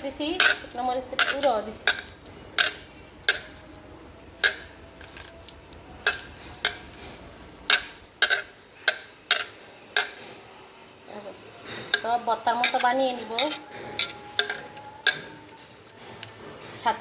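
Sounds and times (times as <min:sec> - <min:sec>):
utensil clinking against bowl: 0:11.7 - 0:16.4.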